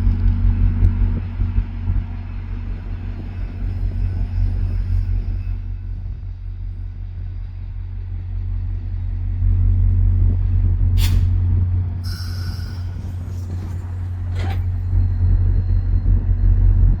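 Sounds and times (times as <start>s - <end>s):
diesel locomotive rumble: 0.0s - 17.0s
air release hiss: 11.0s - 11.4s.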